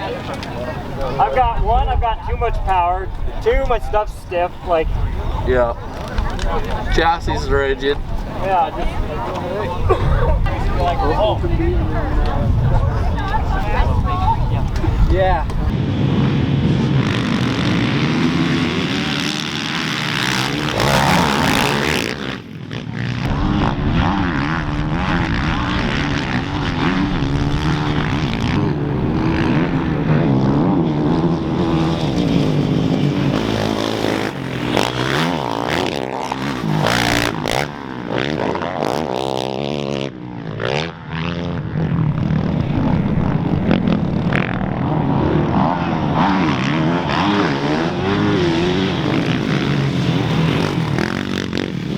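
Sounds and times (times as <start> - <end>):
dirt bike engines racing: 0.0 - 51.9.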